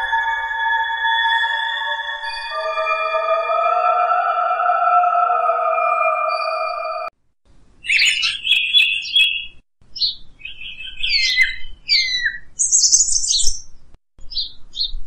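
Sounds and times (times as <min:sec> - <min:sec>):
bird chirping and whistling: 0:00.0 - 0:04.4, 0:07.8 - 0:13.6, 0:14.3 - 0:14.9.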